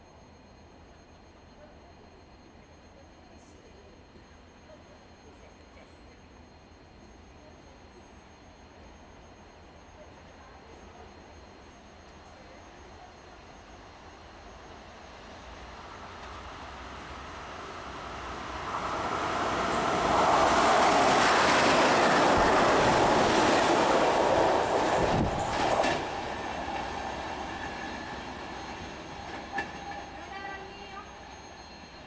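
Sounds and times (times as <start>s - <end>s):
freight train passing: 11.1s - 32.0s
wagons rolling past: 17.2s - 31.4s.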